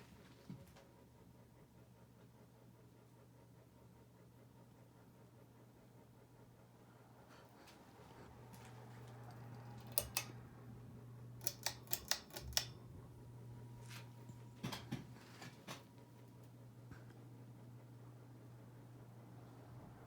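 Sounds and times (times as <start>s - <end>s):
ceiling fan motor hum: 0.0s - 20.0s
sharp clicks: 9.3s - 10.4s, 11.4s - 12.8s.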